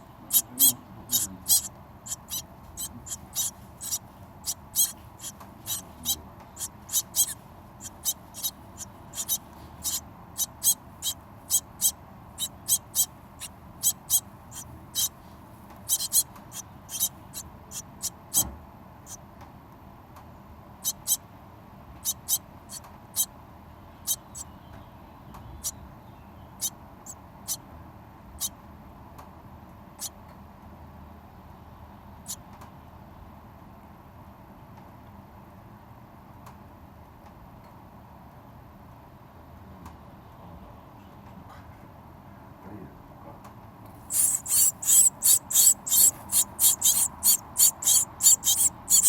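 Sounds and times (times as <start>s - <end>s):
birds squeaky begging calls: 0.3s - 15.1s, 15.9s - 18.1s, 44.1s - 49.0s.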